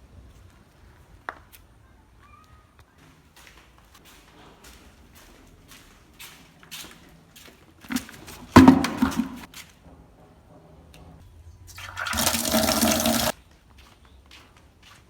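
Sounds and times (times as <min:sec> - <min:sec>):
knock and clatter: 0:08.5 - 0:09.5
water gushing: 0:11.8 - 0:13.3.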